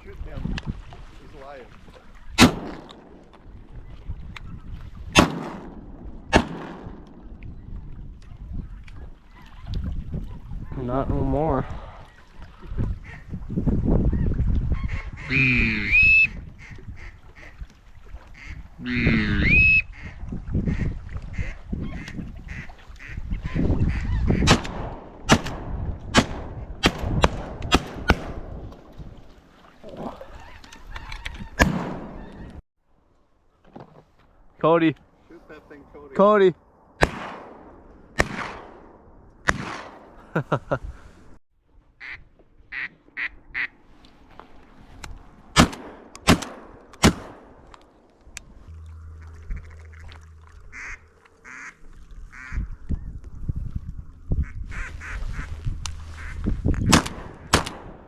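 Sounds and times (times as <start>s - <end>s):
shotgun shots: 2.4s - 3.2s, 5.2s - 7.2s, 24.4s - 28.6s, 31.6s - 32.2s, 37.0s - 40.1s, 45.6s - 47.6s, 56.9s - 58.0s
duck quacks: 18.4s - 23.2s, 50.7s - 52.6s
geese honking: 18.4s - 24.4s, 48.8s - 52.7s, 54.4s - 56.5s.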